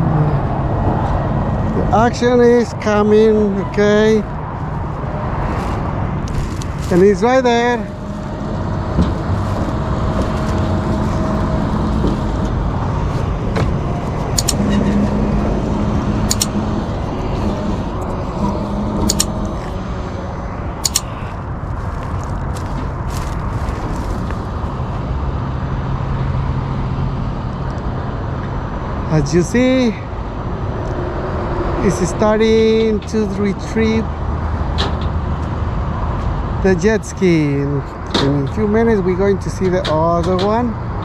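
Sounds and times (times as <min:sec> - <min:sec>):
tow truck engine running: 0:00.0 - 0:29.0
sharp clicks: 0:14.3 - 0:14.7, 0:16.3 - 0:16.6, 0:19.0 - 0:19.6, 0:20.8 - 0:21.2.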